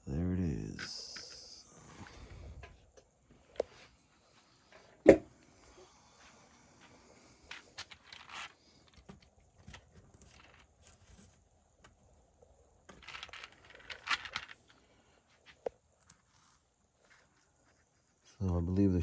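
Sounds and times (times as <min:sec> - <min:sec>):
small metal parts clicking: 0:07.5 - 0:11.2, 0:12.9 - 0:14.8
metal parts rattling clatter: 0:07.8 - 0:12.0, 0:12.9 - 0:14.7.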